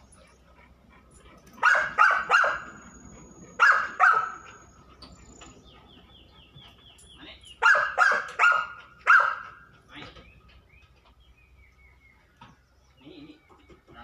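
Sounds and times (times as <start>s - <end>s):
dog barking loudly: 1.6s - 2.8s, 3.6s - 4.5s, 7.6s - 9.6s.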